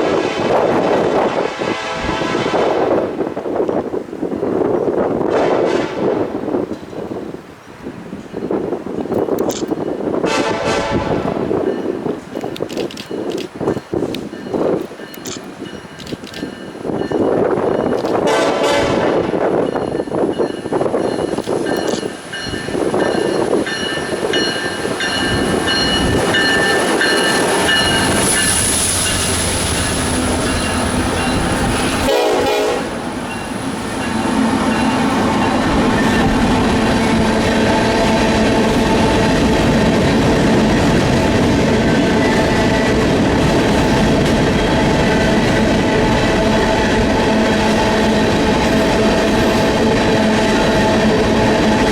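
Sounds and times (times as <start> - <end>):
locomotive air horn: 0.0 - 3.0, 10.2 - 11.4, 18.2 - 19.3, 31.8 - 33.2
train wheels rumbling on rails: 0.0 - 51.9.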